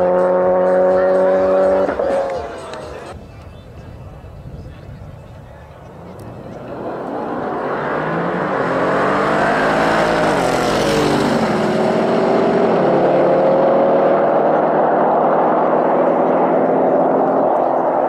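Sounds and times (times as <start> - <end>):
cars accelerating hard: 0.0 - 3.2, 6.0 - 18.0.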